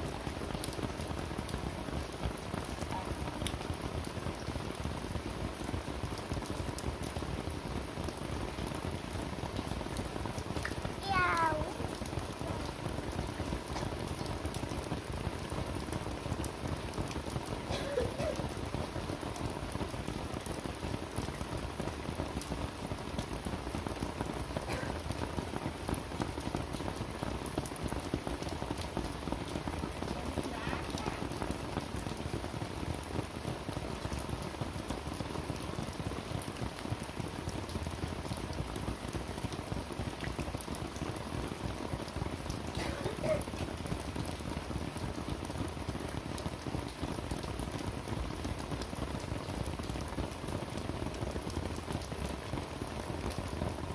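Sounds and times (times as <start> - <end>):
heavy rain pattering: 0.0 - 53.9.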